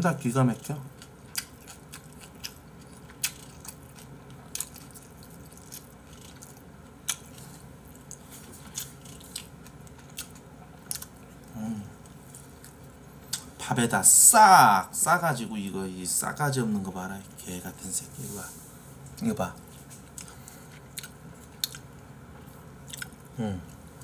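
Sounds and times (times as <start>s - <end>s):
person chewing: 0.9s - 13.5s, 19.6s - 22.0s, 22.8s - 23.9s.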